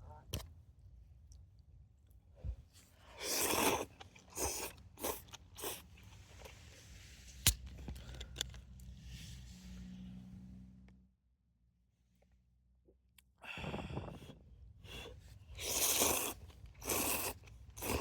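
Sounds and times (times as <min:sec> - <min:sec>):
person slurping and chewing noodles: 0:03.0 - 0:07.0, 0:13.5 - 0:18.0.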